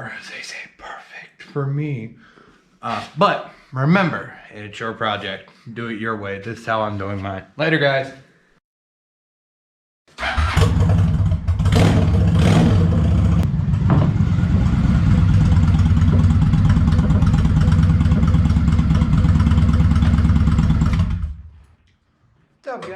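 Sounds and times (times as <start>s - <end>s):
car engine revving and idling: 10.6s - 21.4s.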